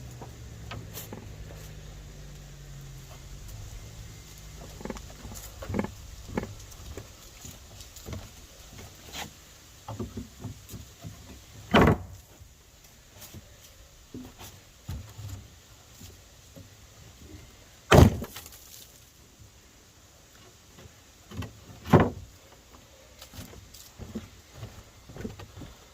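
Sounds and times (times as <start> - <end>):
wooden deck boards clattering: 4.5 - 12.4, 20.7 - 22.4.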